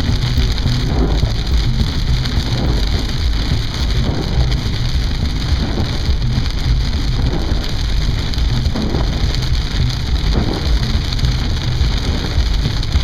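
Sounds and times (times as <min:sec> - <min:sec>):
rain pattering on car: 0:00.0 - 0:13.0
road and engine rumble: 0:00.0 - 0:13.0.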